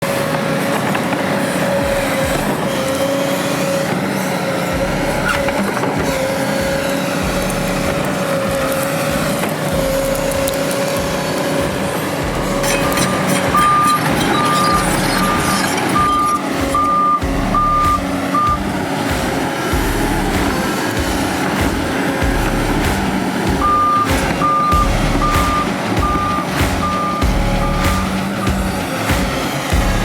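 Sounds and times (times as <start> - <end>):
excavator engine with whine: 0.0 - 30.0
warning alarm beeping: 12.2 - 30.0.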